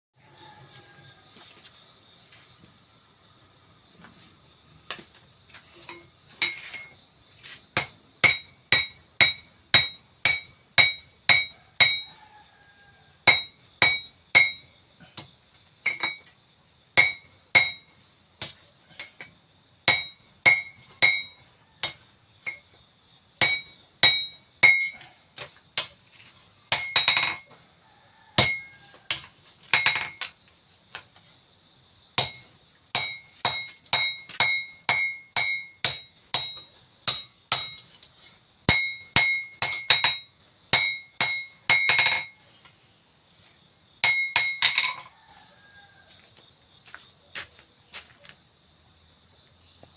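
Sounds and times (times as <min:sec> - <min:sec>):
hammer striking steel on anvil: 0:07.8 - 0:12.2, 0:13.3 - 0:16.4, 0:17.0 - 0:19.3, 0:19.9 - 0:22.6, 0:23.4 - 0:26.0, 0:26.7 - 0:27.6, 0:28.4 - 0:30.3, 0:32.2 - 0:42.6, 0:44.0 - 0:45.3.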